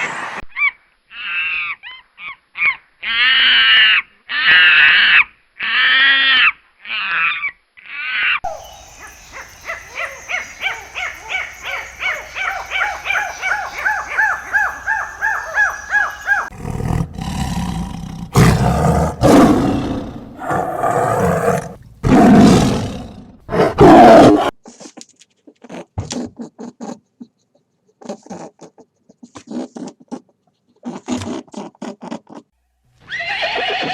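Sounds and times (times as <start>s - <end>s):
loud deep roars: 16.5s - 24.4s.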